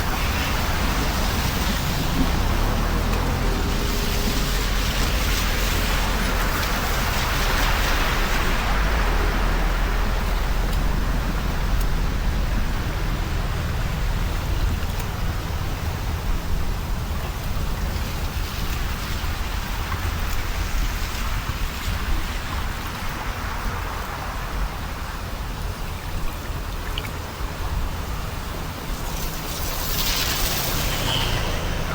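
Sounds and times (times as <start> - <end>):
deep rumble: 0.0 - 25.0
steady rain: 0.0 - 31.9.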